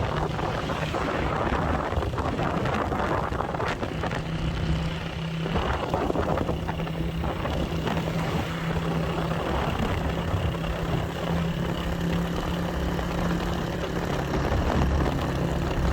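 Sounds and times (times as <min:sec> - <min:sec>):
continuous rushing noise: 0:00.0 - 0:15.9
motorcycle engine running: 0:00.0 - 0:15.9.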